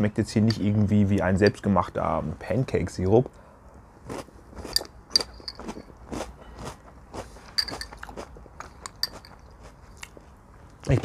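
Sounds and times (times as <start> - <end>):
crunching cereal being chewed: 4.1 - 10.3.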